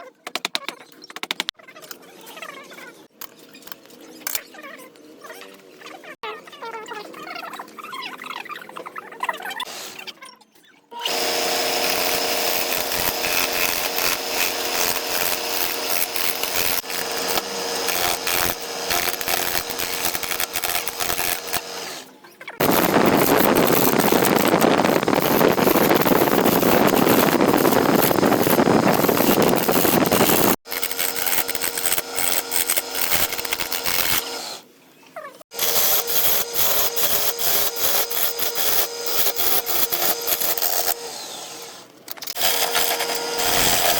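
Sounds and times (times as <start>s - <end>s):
turning tool scraping wood: 11.0s - 34.6s, 35.5s - 43.9s
wood lathe motor hum: 11.0s - 34.6s, 35.5s - 43.9s.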